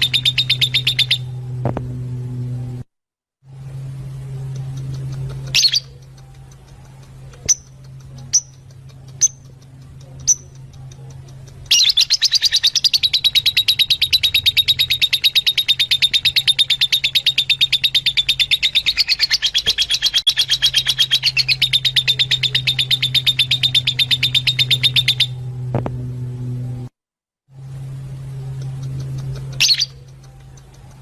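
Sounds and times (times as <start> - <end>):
low steady hum: 0.0 - 26.9, 27.5 - 31.0
bird trilling: 11.7 - 25.5, 29.4 - 30.0.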